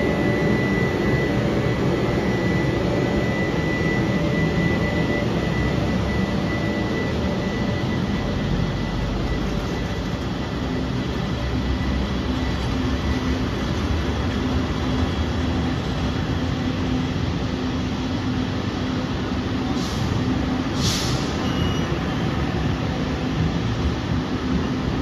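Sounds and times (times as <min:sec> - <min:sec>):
steady hum: 0:00.0 - 0:25.0
brief hisses: 0:20.8 - 0:21.4.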